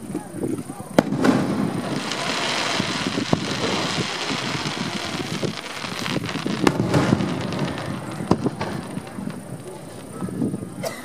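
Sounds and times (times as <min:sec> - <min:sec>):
distant firework shells bursting: 0:01.0 - 0:10.8.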